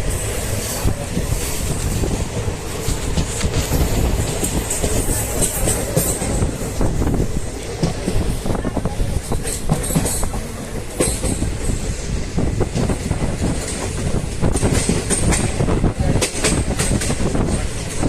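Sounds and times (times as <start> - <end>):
train rumbling on track: 0.0 - 18.0.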